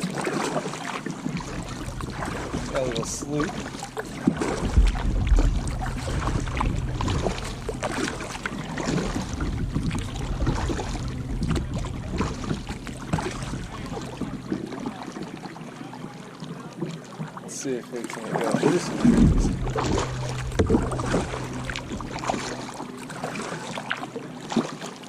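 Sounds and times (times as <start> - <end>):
paddle splashing in water: 0.0 - 25.0
low rumble: 1.3 - 15.1, 18.8 - 24.0.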